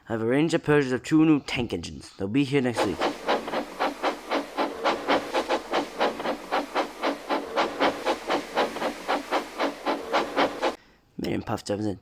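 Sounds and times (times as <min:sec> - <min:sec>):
steam locomotive chuffing: 0:02.8 - 0:10.8.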